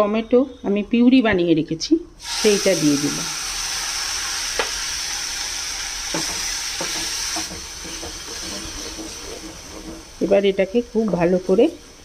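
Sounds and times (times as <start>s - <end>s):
food sizzling in hot oil: 2.2s - 12.0s
wooden spatula knocking on pan: 6.1s - 10.1s.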